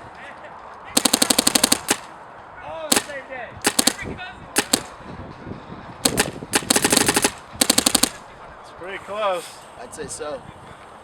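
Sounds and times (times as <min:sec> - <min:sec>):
paintball marker firing: 0:01.0 - 0:02.1, 0:02.9 - 0:05.0, 0:06.0 - 0:08.2.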